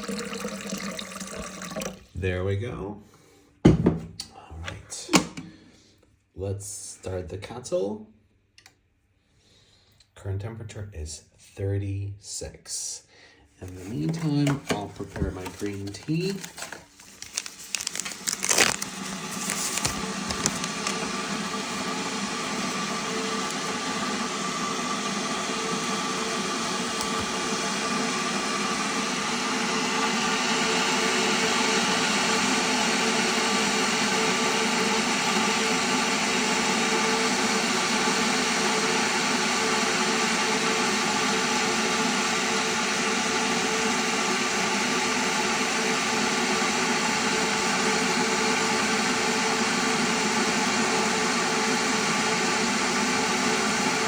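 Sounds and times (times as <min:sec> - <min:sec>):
electric kettle heating hiss: 0:00.0 - 0:02.0.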